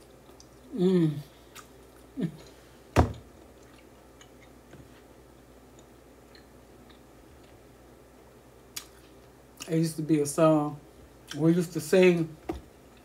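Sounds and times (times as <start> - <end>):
person humming mmm: 0.7 - 1.4
person chewing meat: 3.2 - 7.6.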